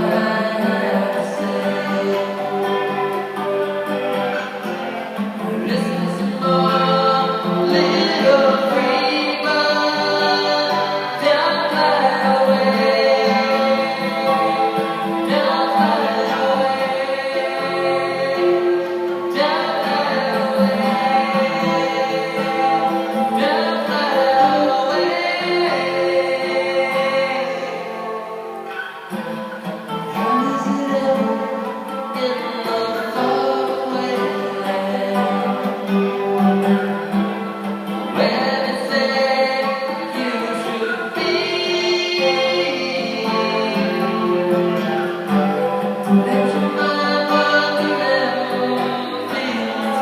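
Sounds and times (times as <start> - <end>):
choir singing in harmony: 0.0 - 50.0.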